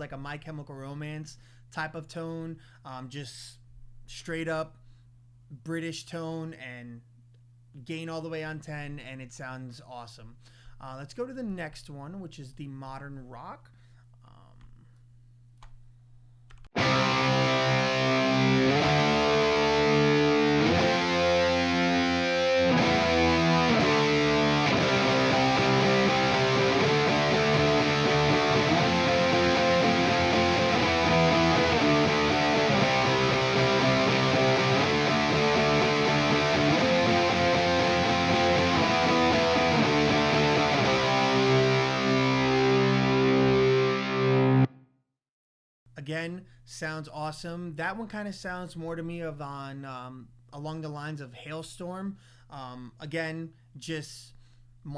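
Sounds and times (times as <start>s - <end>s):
distorted electric guitar chords: 16.8s - 44.8s.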